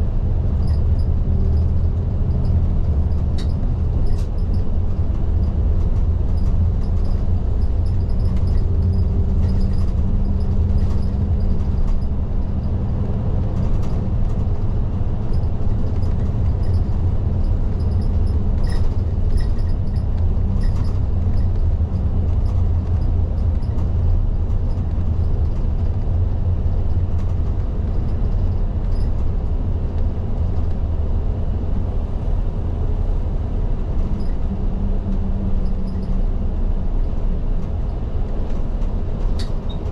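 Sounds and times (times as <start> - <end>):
bus engine and road noise: 0.0 - 39.9.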